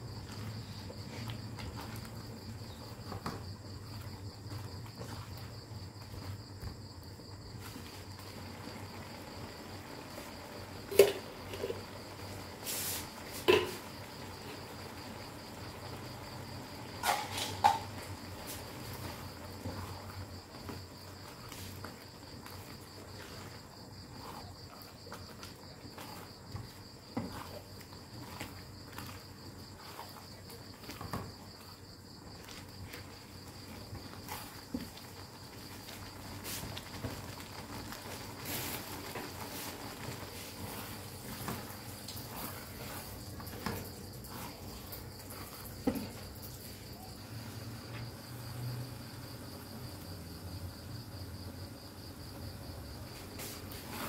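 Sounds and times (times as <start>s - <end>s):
chilli paste sizzling in a wok: 0.0s - 54.0s
spatula knocking and scraping: 10.8s - 14.6s, 16.4s - 46.9s.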